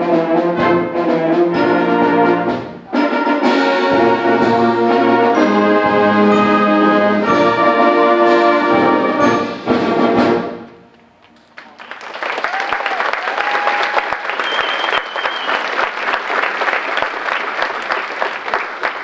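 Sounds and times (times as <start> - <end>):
band brass chord: 0.6 - 10.8
audience applause: 11.4 - 19.0
whistles from audience: 12.5 - 15.9.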